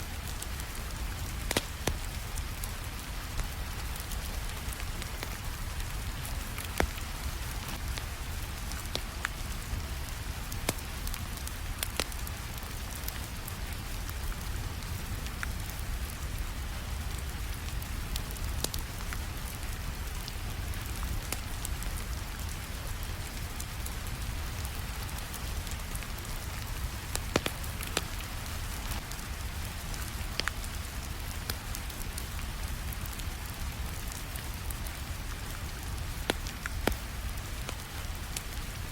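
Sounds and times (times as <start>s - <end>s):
steady rain: 0.0s - 38.9s
fireplace crackling: 23.8s - 38.9s.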